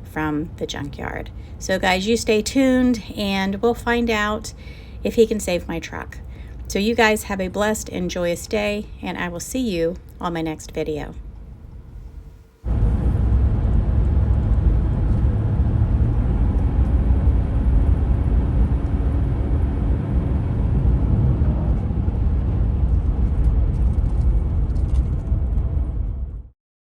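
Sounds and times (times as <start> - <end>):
vehicle engine and road rumble: 11.4 - 26.5.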